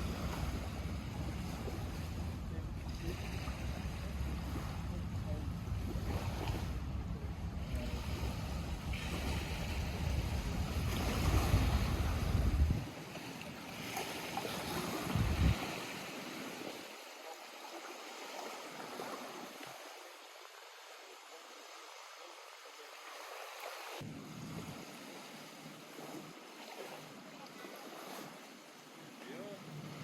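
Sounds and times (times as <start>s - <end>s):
water lapping against shore: 0.0s - 30.0s
wind buffeting microphone: 7.8s - 13.0s, 14.6s - 15.9s.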